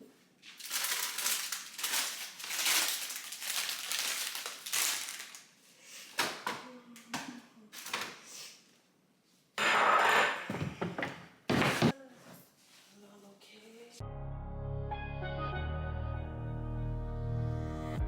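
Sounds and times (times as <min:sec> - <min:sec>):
plastic crinkling and rustling: 0:00.4 - 0:06.5, 0:07.7 - 0:08.2.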